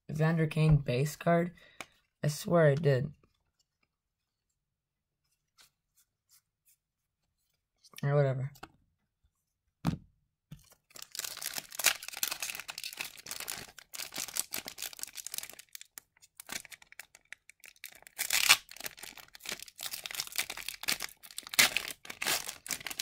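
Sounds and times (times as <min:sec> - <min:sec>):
cards rustling: 0:10.6 - 0:23.0
wrapper crinkling and tearing: 0:10.6 - 0:23.0.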